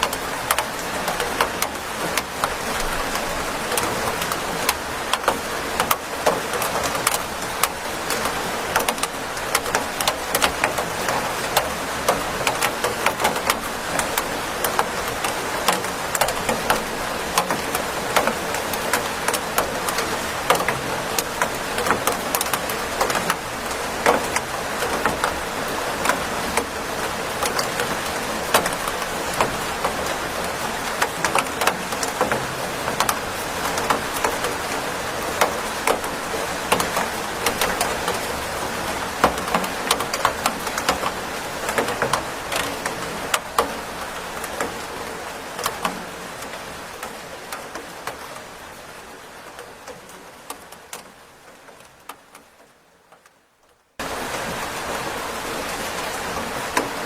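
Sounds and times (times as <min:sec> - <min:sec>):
raindrops tapping on a surface: 0:00.0 - 0:57.0
steady rain hiss: 0:00.0 - 0:57.0.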